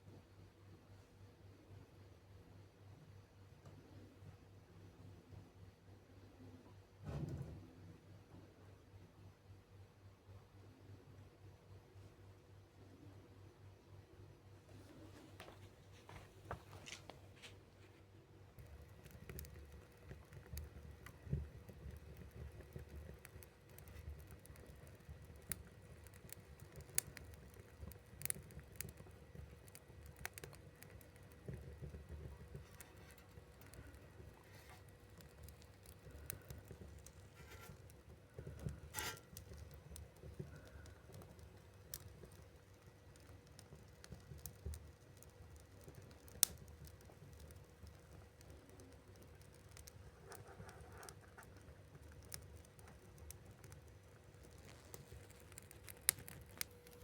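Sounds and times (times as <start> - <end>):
wood fire crackling: 14.7 - 57.0.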